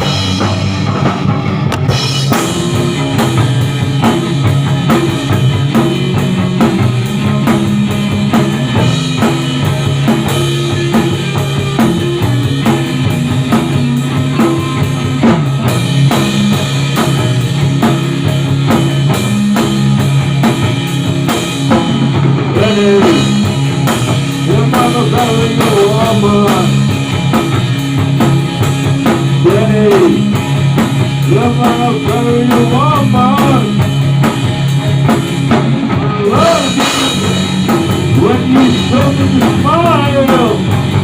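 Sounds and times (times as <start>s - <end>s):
bass guitar: 0.0s - 41.0s
drum kit fast beat: 0.0s - 41.0s
electric guitar: 0.0s - 41.0s.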